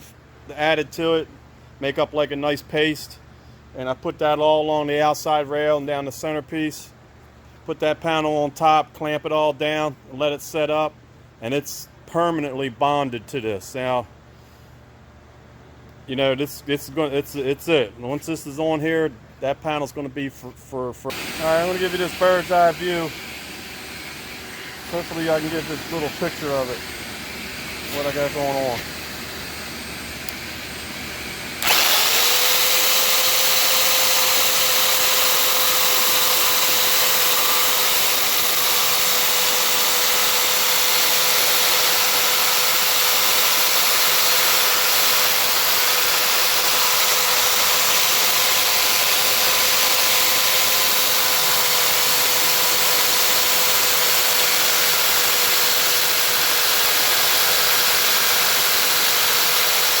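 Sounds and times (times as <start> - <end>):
jigsaw cutting fiberglass: 21.1 - 60.0.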